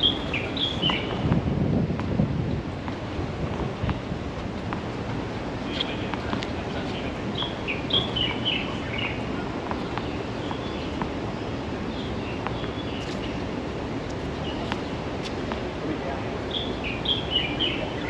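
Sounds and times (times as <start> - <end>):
small birds chirping: 0.0 - 1.3, 5.7 - 15.4, 16.3 - 18.0
outdoor background noise: 0.0 - 18.0.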